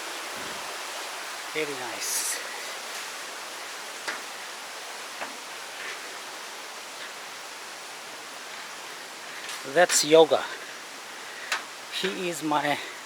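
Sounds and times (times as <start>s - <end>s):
waterfall rushing: 0.0s - 13.0s
faint clicks: 11.4s - 11.7s.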